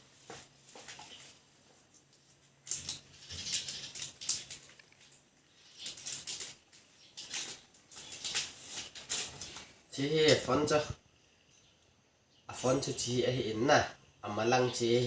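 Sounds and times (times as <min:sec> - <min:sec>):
packaging rustling and rubbing: 0:00.4 - 0:09.9.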